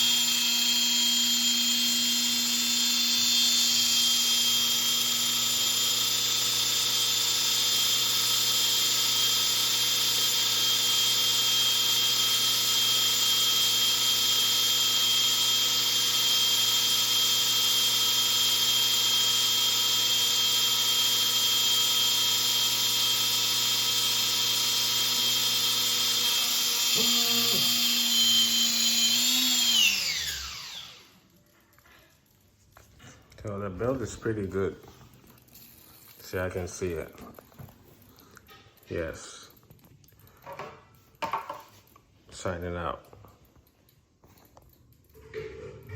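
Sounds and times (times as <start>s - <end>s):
rc helicopter motor whining: 0.0s - 31.2s.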